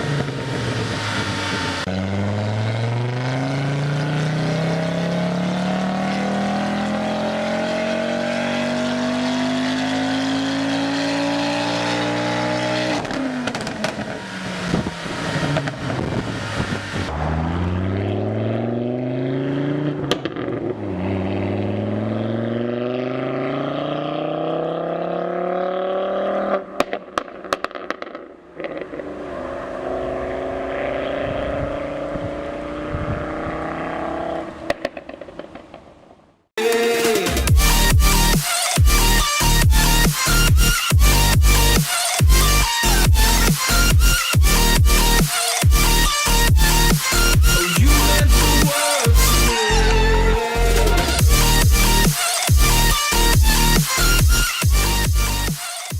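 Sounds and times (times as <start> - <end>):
car engine revving: 0.0 - 35.5, 37.1 - 55.9
exhaust pops and crackles: 13.0 - 17.1, 20.0 - 20.6, 26.8 - 28.9, 34.7 - 36.2
sharp exhaust bangs: 37.3 - 55.6.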